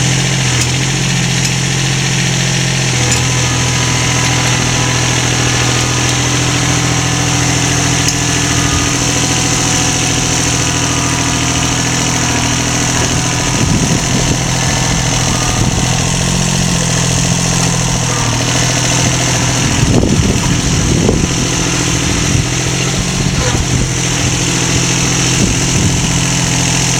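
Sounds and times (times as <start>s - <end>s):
engine humming steadily: 0.0s - 26.9s.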